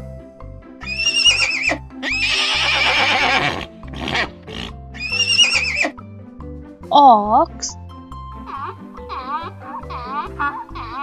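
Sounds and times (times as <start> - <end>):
light background music: 0.0 - 11.0
horse neighing: 0.8 - 6.0, 8.4 - 11.0.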